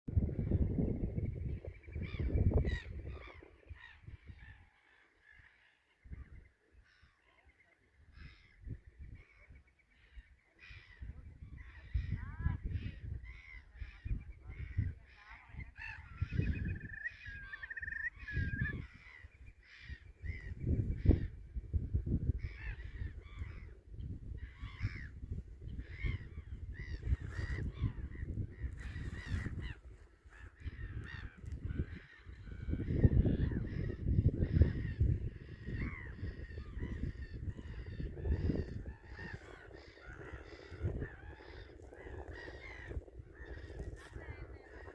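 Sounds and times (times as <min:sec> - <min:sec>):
birds honking calls: 0:06.8 - 0:21.4, 0:22.4 - 0:44.9
bird high trill: 0:16.4 - 0:18.8.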